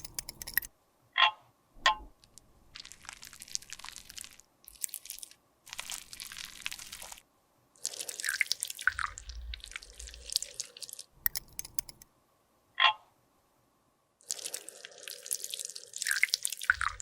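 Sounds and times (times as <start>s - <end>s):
clicks: 0.0s - 0.7s, 11.3s - 12.0s.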